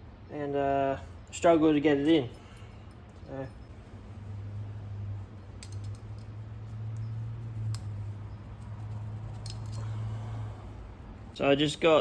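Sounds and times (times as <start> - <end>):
steady low hum: 0.0 - 12.0
small metal clicks and taps: 5.6 - 7.1, 7.7 - 8.0, 8.6 - 9.9.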